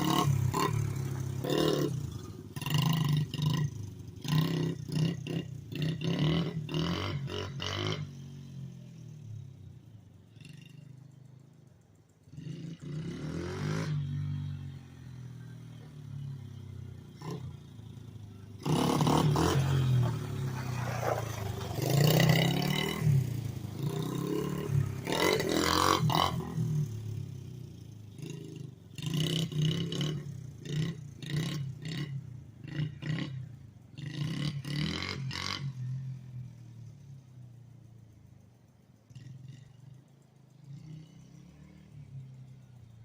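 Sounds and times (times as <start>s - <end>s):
small motorbike engine revving: 0.0s - 9.1s, 12.3s - 36.4s.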